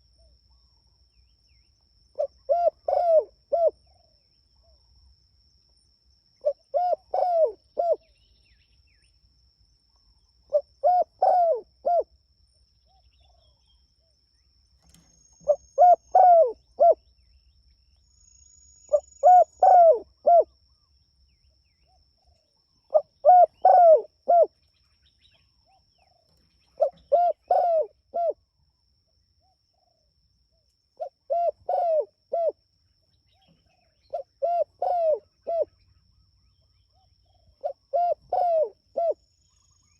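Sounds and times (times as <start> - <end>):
dove cooing: 2.2 - 4.1, 6.4 - 8.1, 10.5 - 12.1, 15.4 - 17.0, 18.9 - 20.5, 22.9 - 24.6, 26.7 - 28.4, 31.0 - 32.6, 33.4 - 35.8, 36.9 - 39.2.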